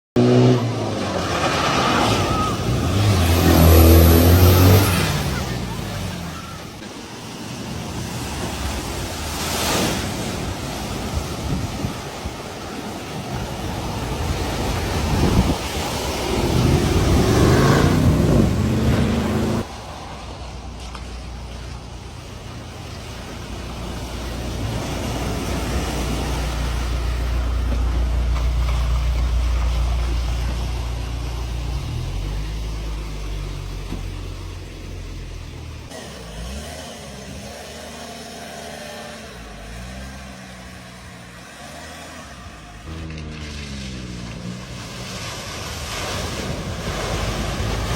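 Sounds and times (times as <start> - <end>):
rushing water: 0.2 - 47.9
wind noise: 7.4 - 20.2.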